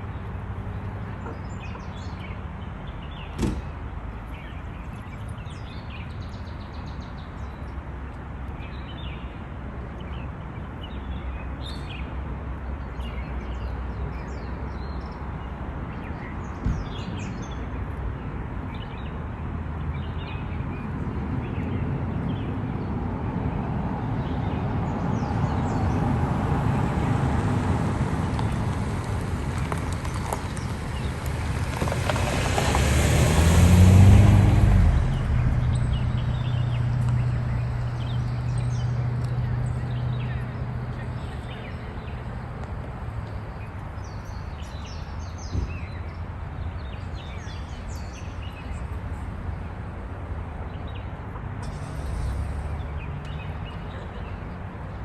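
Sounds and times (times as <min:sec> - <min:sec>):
vehicle passing: 0:23.1 - 0:43.1
birds chirping: 0:29.6 - 0:49.8.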